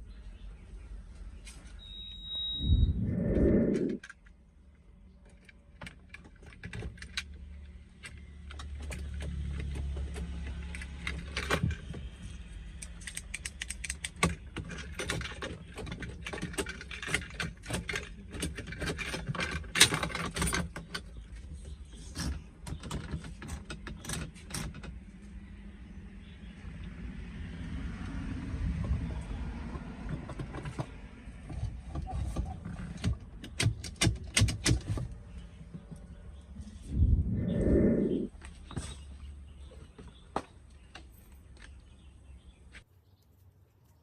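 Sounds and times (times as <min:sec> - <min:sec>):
low hum: 0:02.6 - 0:04.1, 0:36.6 - 0:38.4.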